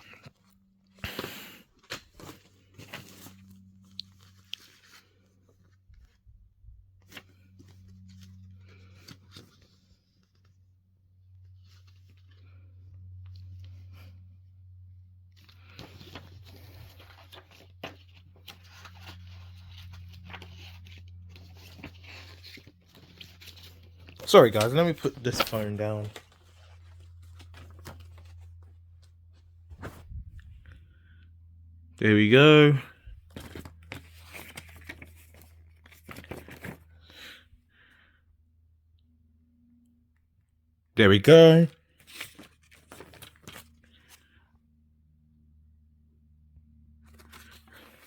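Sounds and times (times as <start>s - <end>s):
paper rustling: 0.0s - 6.2s, 15.4s - 30.6s, 33.3s - 37.4s, 42.0s - 44.3s, 47.1s - 48.0s.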